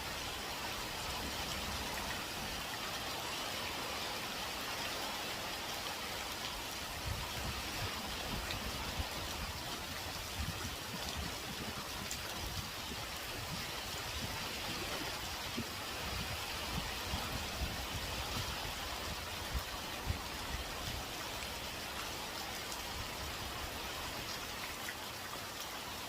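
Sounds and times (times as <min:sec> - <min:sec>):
heavy rain pouring: 0:00.0 - 0:26.0
wind buffeting microphone: 0:07.0 - 0:20.7.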